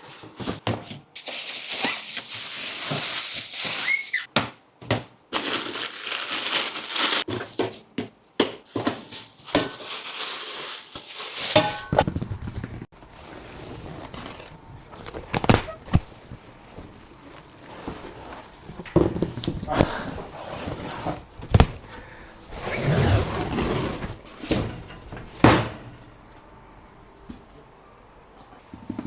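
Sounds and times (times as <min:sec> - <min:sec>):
packaging crinkling and rustling: 0:01.2 - 0:04.3, 0:05.3 - 0:07.6, 0:08.7 - 0:13.1.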